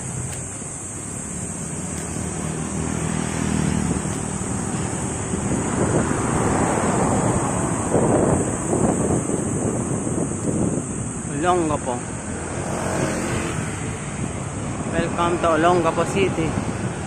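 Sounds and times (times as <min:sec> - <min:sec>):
steady high-pitched hiss: 0:00.0 - 0:06.0, 0:07.2 - 0:12.8
wind rushing over microphone: 0:00.0 - 0:17.0.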